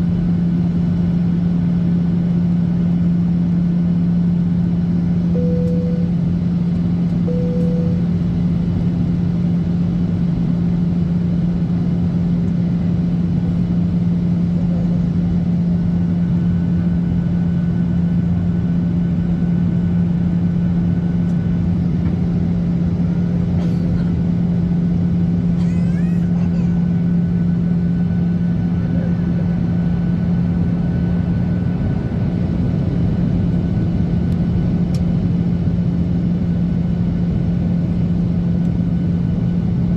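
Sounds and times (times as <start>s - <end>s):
aircraft cabin engine hum: 0.0s - 39.9s.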